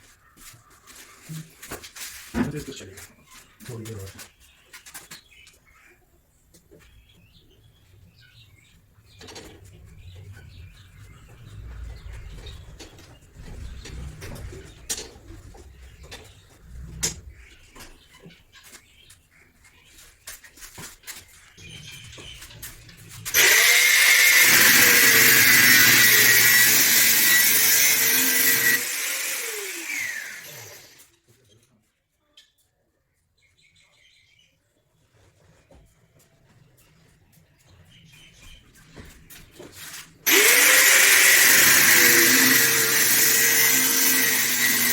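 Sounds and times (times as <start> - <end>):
birds chirping: 2.5 - 31.7
low rumble: 9.1 - 17.5
electric power tool motor whine: 23.3 - 31.0, 40.3 - 44.9.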